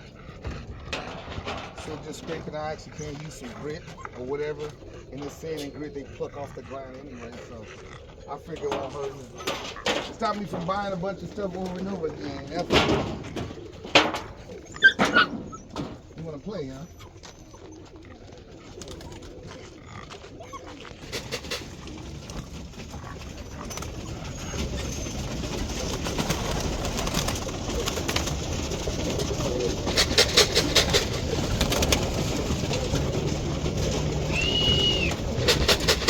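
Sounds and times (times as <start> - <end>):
pigeons cooing: 0.0 - 36.0
rapid clicking clatter: 21.0 - 36.0.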